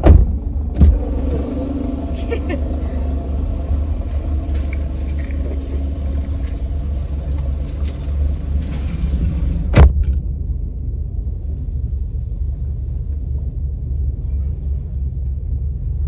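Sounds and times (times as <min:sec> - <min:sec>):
loud thump: 0:00.0 - 0:01.6, 0:09.7 - 0:10.2
low rumble: 0:00.0 - 0:16.0.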